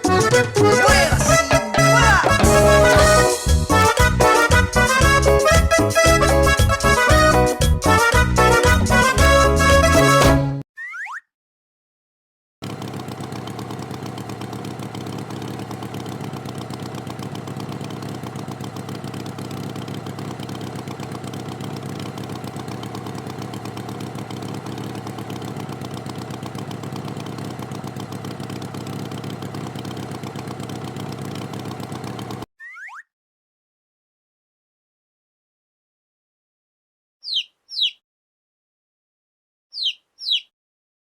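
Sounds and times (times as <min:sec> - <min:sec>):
tractor engine idling: 0:12.6 - 0:32.4.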